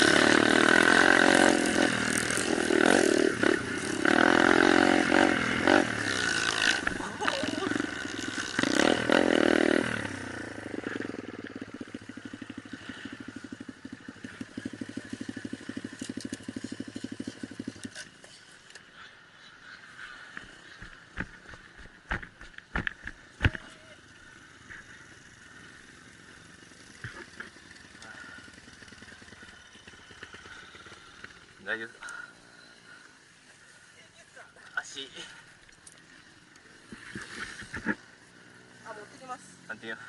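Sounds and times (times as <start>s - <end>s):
motorcycle engines revving: 0.0s - 40.0s.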